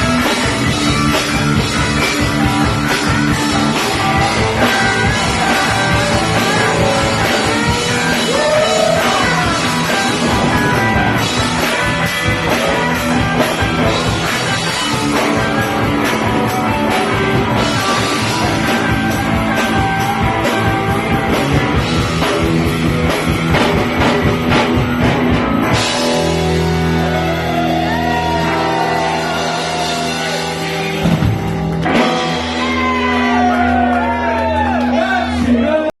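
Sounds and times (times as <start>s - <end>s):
drum kit: 0.0s - 35.7s
bass guitar: 0.0s - 35.9s
electric guitars: 0.0s - 35.9s
shouted vocals: 4.0s - 11.7s, 26.8s - 31.0s, 32.3s - 35.9s.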